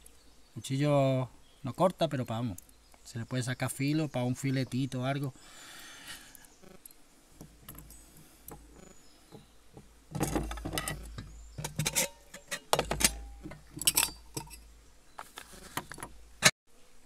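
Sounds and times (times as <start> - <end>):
metal pots clinking and clattering: 10.1 - 14.6.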